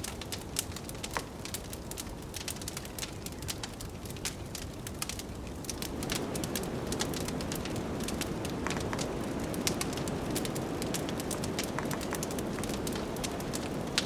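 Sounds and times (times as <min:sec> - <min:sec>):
wood fire crackling: 0:00.0 - 0:14.0
blizzard wind rushing: 0:05.6 - 0:14.0.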